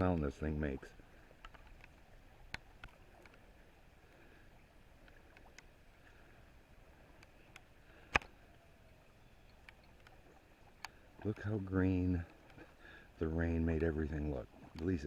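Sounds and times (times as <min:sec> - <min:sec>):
light ticks: 0:01.4 - 0:03.5, 0:05.0 - 0:06.2, 0:07.1 - 0:08.4, 0:09.4 - 0:11.4, 0:13.6 - 0:15.0.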